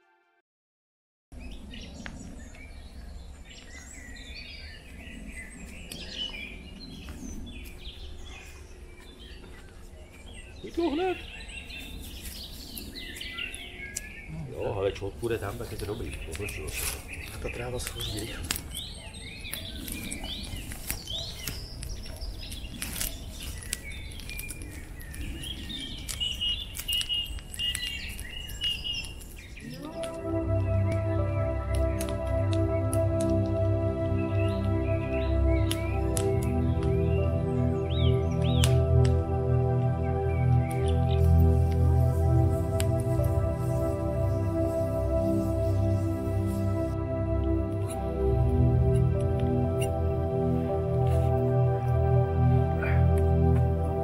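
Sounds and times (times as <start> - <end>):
steady low rumble: 1.4 - 26.7
songbirds chirping and singing: 1.4 - 54.0
small clicks and crackles: 19.5 - 30.2.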